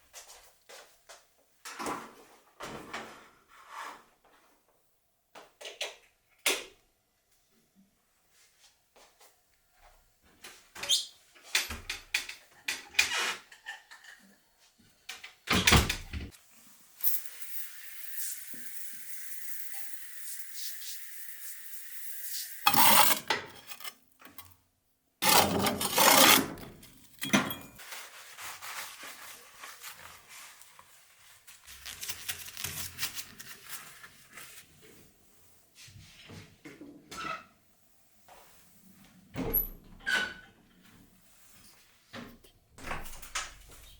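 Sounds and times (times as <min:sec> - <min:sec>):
dishes and utensils clinking: 0:25.2 - 0:27.9.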